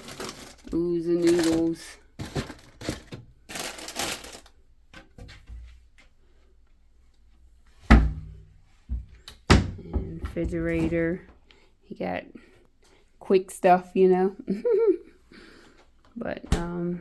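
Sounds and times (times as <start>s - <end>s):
rustling in kitchen cabinet: 0.0s - 6.2s, 7.6s - 11.4s
cabinet door thud: 7.8s - 11.1s
knock: 7.9s - 10.9s.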